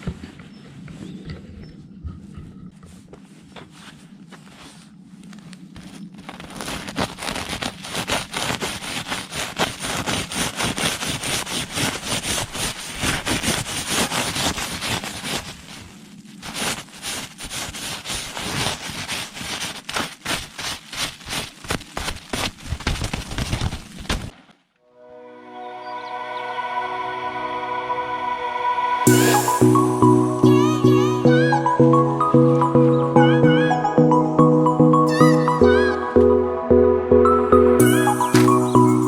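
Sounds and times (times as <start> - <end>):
fabric rattling in wind: 0.0 - 24.7.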